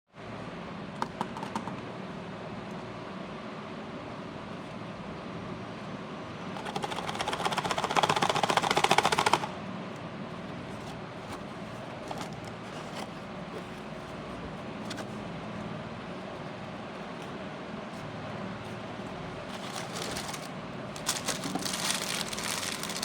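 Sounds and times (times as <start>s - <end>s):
packaging being ripped open: 19.6s - 23.0s.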